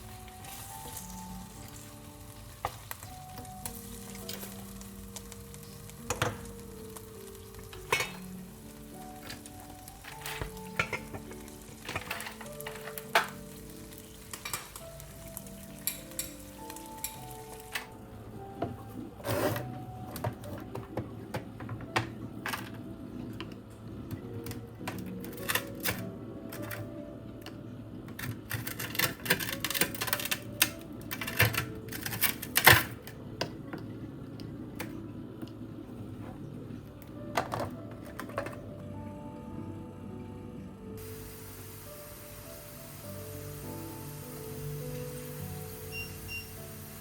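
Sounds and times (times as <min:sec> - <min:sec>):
food sizzling in a frying pan: 0:00.0 - 0:18.5, 0:41.0 - 0:47.0
soft background music: 0:00.0 - 0:47.0
utensils clinking against pan: 0:07.6 - 0:08.4, 0:09.2 - 0:17.9.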